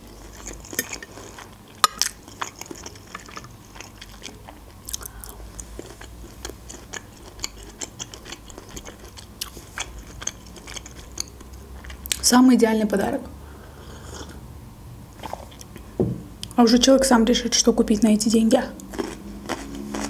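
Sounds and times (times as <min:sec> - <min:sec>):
person chewing: 0:00.0 - 0:12.2, 0:13.8 - 0:14.4, 0:15.2 - 0:15.9, 0:18.8 - 0:20.0.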